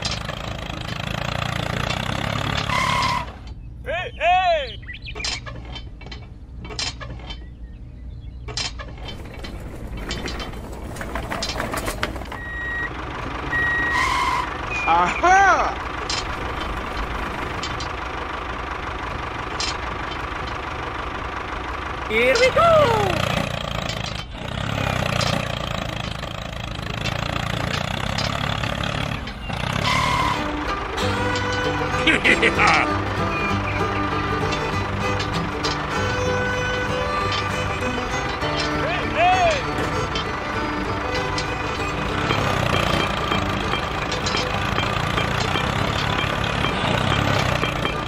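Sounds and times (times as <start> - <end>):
small gears clicking and rattling: 0.0 - 2.7, 15.9 - 48.0
machinery humming: 4.7 - 48.0
small engine running: 9.1 - 48.0.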